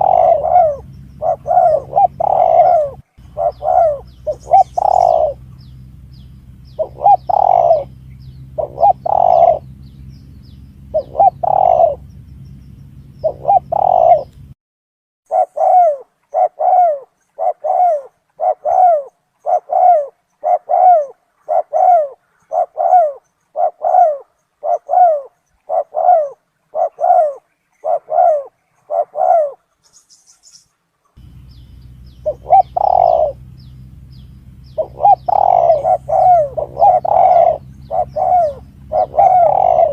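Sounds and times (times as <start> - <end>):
dove cooing: 0.0 - 14.5, 15.3 - 30.0, 31.2 - 39.9
low hum: 0.0 - 14.6, 31.2 - 39.9.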